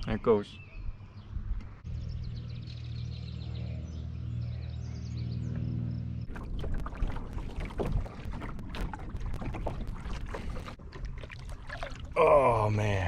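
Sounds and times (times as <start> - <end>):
steady low hum: 1.7 - 13.0
paddle splashing water: 6.3 - 12.7.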